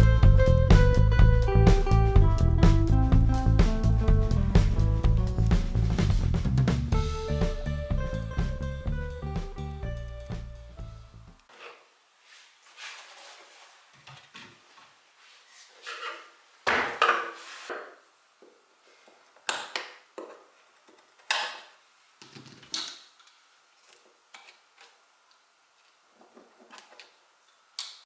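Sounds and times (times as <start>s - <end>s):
wood and tools knocking and scraping: 15.6s - 22.8s.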